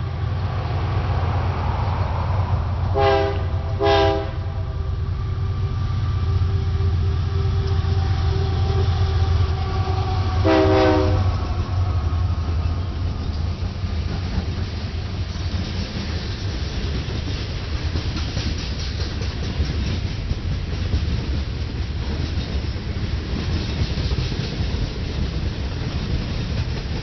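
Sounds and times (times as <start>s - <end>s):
train rumble: 0.0s - 27.0s
locomotive air horn blasts: 2.9s - 11.9s.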